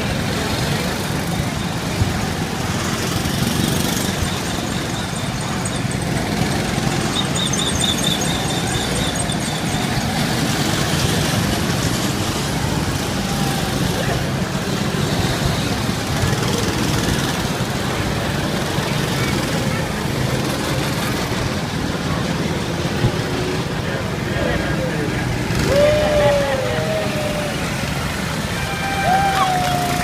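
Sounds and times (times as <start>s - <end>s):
small engines running: 0.0s - 30.0s
quick high chirps: 4.5s - 10.2s.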